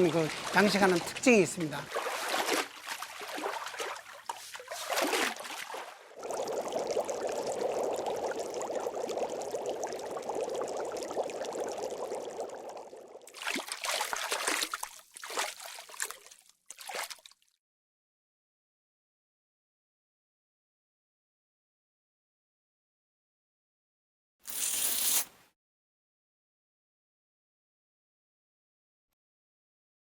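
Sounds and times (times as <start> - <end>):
water splashing: 0.0 - 8.4, 9.0 - 17.2
water pouring: 0.0 - 17.2.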